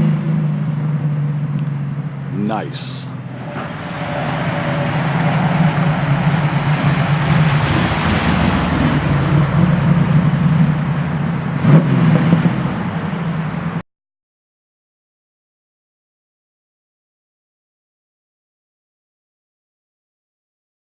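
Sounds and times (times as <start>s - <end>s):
car engine running loud: 0.0s - 13.8s.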